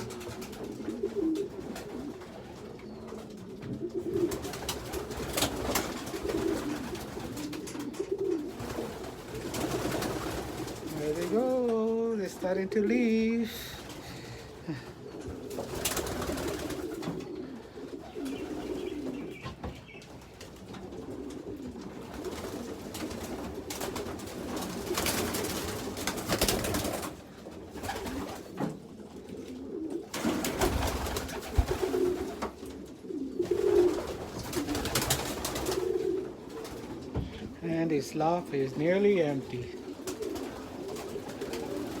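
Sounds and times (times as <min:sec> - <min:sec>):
pigeons cooing: 0:00.0 - 0:42.0.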